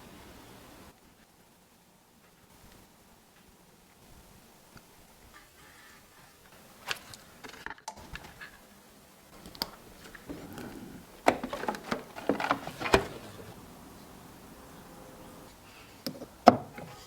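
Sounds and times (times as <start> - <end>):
hard objects clicking and knocking: 9.4 - 13.6.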